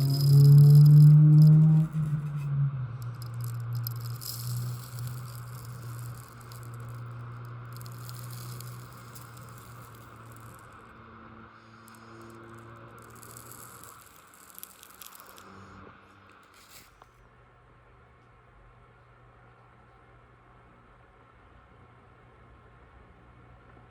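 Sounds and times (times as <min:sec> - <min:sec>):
model train motor hum: 0:00.0 - 0:10.9, 0:11.6 - 0:15.8.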